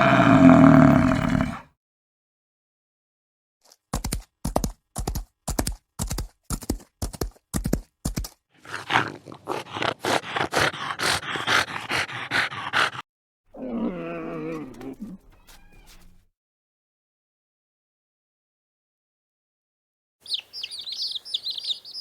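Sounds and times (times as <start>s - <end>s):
animal rough rasping call: 0.0s - 1.6s, 8.6s - 13.0s.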